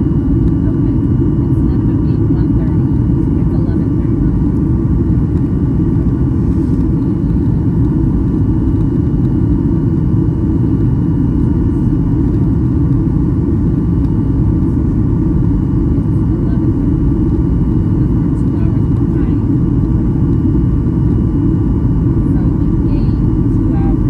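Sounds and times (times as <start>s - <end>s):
aircraft cabin engine rumble: 0.0s - 24.0s.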